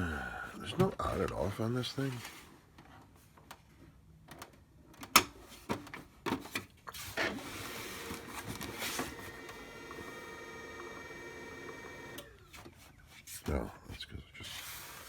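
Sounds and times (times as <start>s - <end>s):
printer motors whirring: 7.2s - 12.6s.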